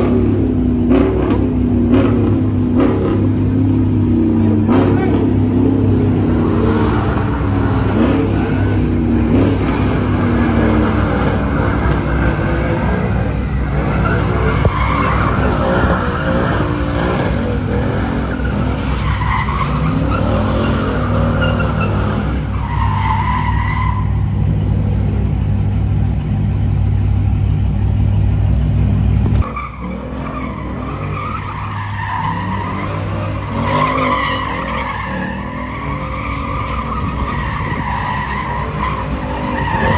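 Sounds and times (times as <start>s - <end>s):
car engine at high revs: 0.0s - 39.9s
tyre squeal: 4.2s - 24.5s, 29.4s - 39.9s.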